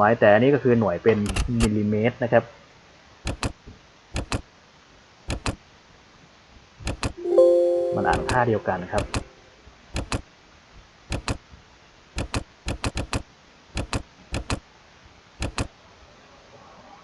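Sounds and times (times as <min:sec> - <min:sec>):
computer mouse clicks: 0:03.3 - 0:03.6, 0:04.2 - 0:04.4, 0:05.3 - 0:05.6, 0:10.0 - 0:10.2, 0:11.1 - 0:11.4, 0:12.2 - 0:13.2, 0:13.8 - 0:14.6, 0:15.4 - 0:15.7.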